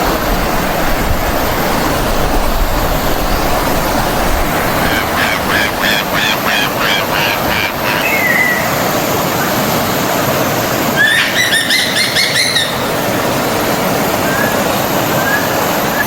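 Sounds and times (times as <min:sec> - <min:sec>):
stream of water flowing: 0:00.0 - 0:16.0
bird singing repeated notes: 0:04.8 - 0:08.8, 0:11.0 - 0:12.9.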